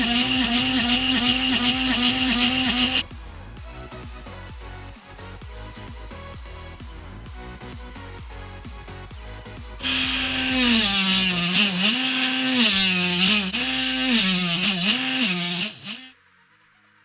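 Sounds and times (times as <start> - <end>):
electric drill motor running: 0.0 - 3.0, 9.8 - 16.1
background music: 0.3 - 14.7.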